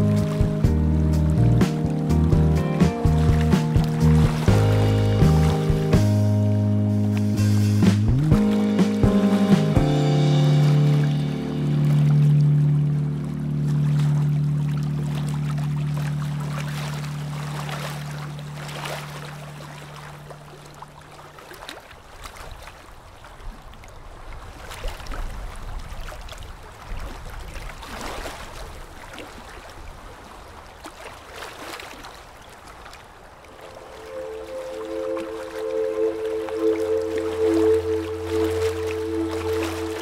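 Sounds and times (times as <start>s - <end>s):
background music: 0.0s - 14.0s, 33.6s - 40.0s
river water lapping and splashing: 0.0s - 40.0s
wind rumble on microphone: 22.4s - 30.4s.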